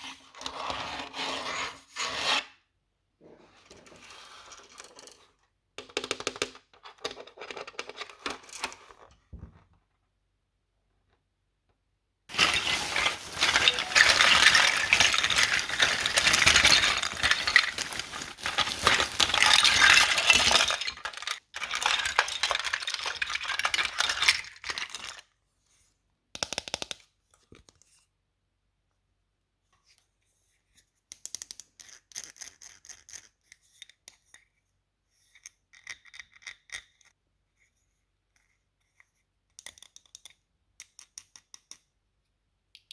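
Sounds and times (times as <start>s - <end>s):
packaging crackling and rustling: 12.3s - 25.1s.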